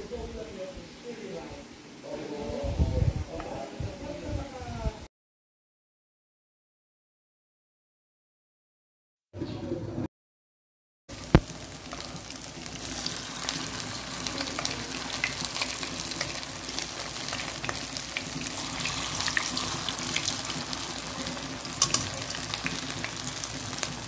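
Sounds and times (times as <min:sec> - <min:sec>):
food frying in oil: 0:11.1 - 0:24.0.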